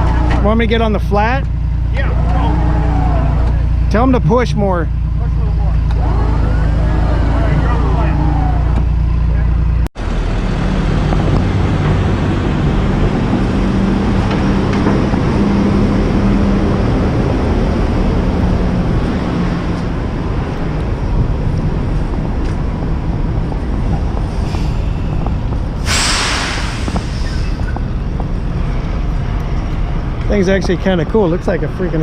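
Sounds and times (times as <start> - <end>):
truck engine running: 0.0 - 32.0
sharp hiss of air: 25.8 - 27.8.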